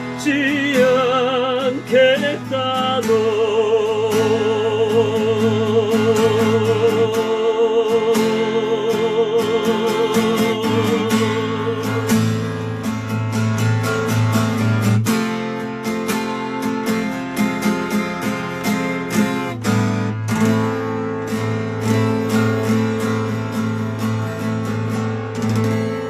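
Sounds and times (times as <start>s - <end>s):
person singing with vibrato: 0.0s - 12.7s
guitar strumming: 0.0s - 26.0s.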